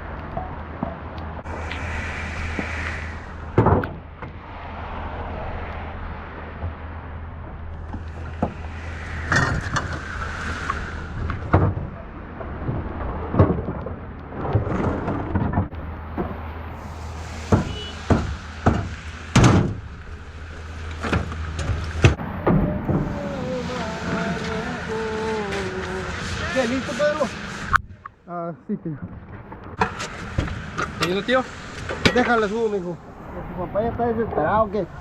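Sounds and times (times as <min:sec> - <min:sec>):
low engine hum: 0:00.0 - 0:28.1
irregular knocks and bangs: 0:17.4 - 0:19.8.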